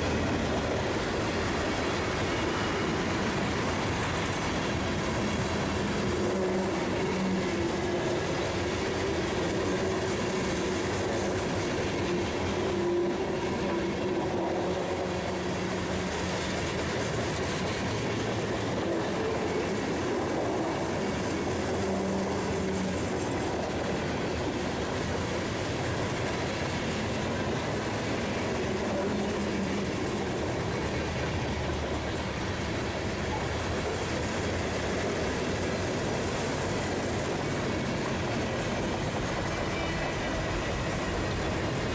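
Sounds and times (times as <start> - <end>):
freight train wheels on rails: 0.0 - 41.9.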